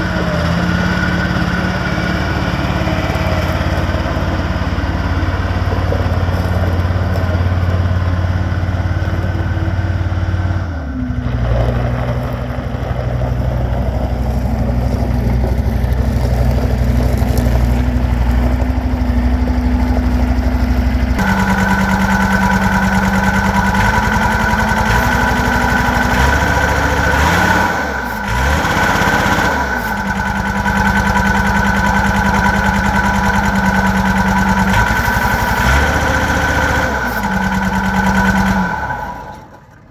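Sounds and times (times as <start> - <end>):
diesel engine running: 0.0 - 39.9
steady high whine: 14.6 - 39.6.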